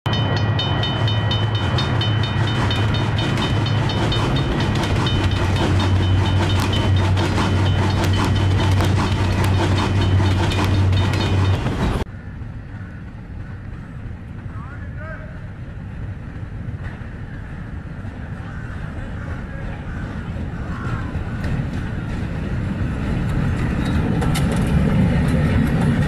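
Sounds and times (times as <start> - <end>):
fast high ringing: 0.1 - 12.0
train clickety-clack: 0.1 - 12.1, 12.8 - 26.0
outdoor ambience: 0.1 - 26.0.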